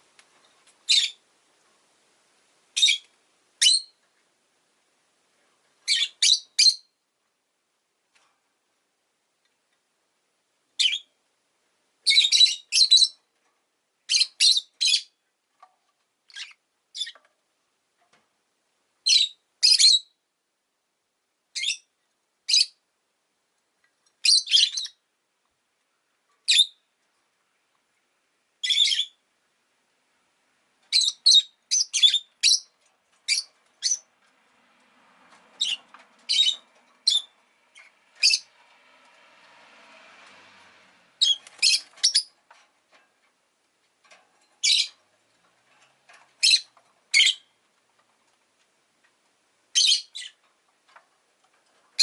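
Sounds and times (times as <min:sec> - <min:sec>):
bird shrill chirps: 0:35.6 - 0:37.4, 0:38.2 - 0:38.5, 0:49.8 - 0:50.4.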